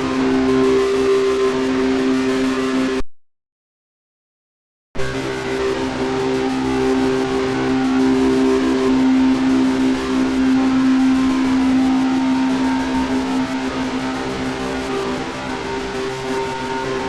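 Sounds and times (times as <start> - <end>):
low droning tones: 5.0 - 17.0.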